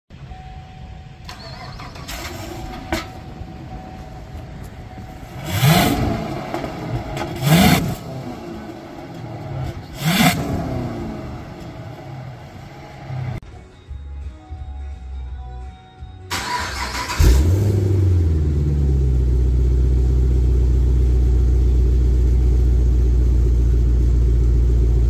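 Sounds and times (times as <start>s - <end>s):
car engine idling and revving: 0.1s - 13.4s, 16.3s - 25.0s.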